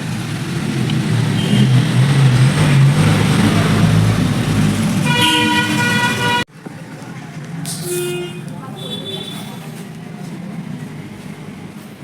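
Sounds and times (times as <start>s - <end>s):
vehicle horn: 5.0s - 6.5s, 7.8s - 9.6s.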